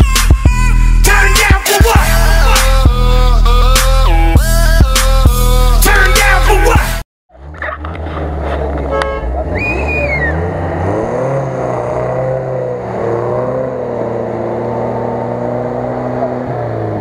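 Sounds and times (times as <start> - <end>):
engine revving hard in mud: 7.4 - 17.0
falling squeal: 9.5 - 10.6.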